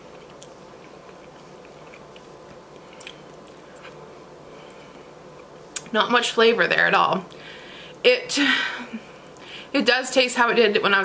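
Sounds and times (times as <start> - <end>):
person chewing: 0.0 - 5.9.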